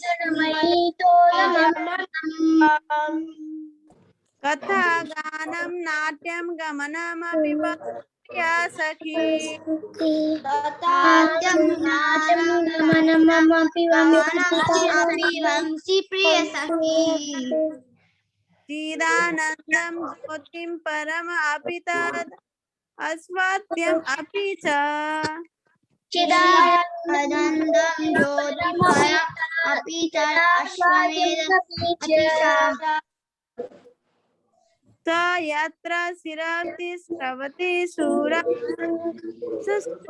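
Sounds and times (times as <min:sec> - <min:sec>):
child chanting: 0:00.0 - 0:03.8, 0:08.7 - 0:17.8, 0:26.1 - 0:33.1, 0:37.9 - 0:40.0.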